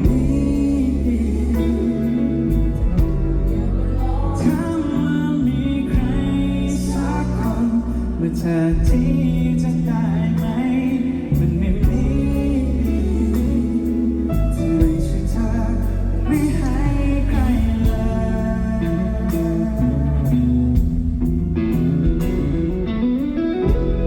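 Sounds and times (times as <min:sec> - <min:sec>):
person singing: 0:00.0 - 0:21.1
live band playing pop song: 0:00.0 - 0:24.0.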